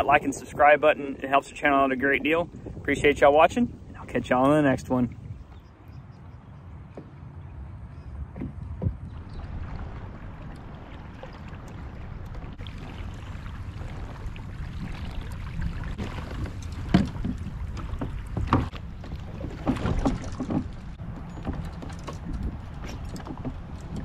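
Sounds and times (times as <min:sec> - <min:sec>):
wind on microphone: 0:00.0 - 0:06.4, 0:08.0 - 0:24.0
hollow knocks against hull: 0:08.3 - 0:09.3, 0:15.9 - 0:24.0.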